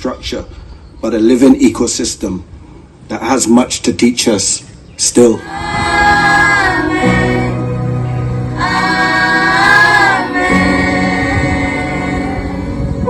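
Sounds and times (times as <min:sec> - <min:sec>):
choir singing held notes: 0:05.4 - 0:13.0
low accompaniment: 0:05.4 - 0:13.0.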